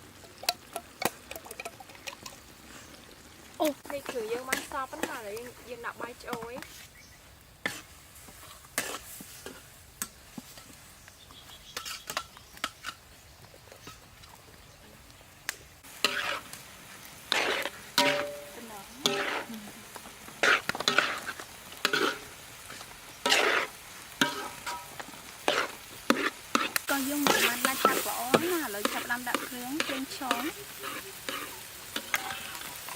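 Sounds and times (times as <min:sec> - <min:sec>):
faint sizzling: 0:00.0 - 0:32.9
spatula scraping pan: 0:03.8 - 0:06.9, 0:07.6 - 0:10.8, 0:11.6 - 0:13.0, 0:15.8 - 0:32.9.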